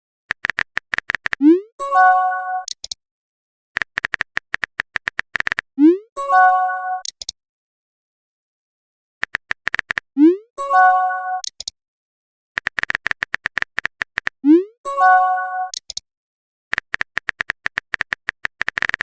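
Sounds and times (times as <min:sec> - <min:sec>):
chiming notification tone: 0:05.9 - 0:07.0, 0:10.2 - 0:11.4, 0:14.6 - 0:15.7.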